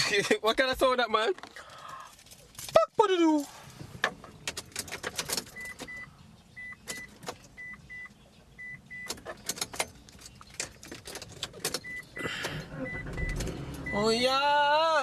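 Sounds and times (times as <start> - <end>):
car warning chime beeping: 5.5 - 9.7, 11.7 - 15.0.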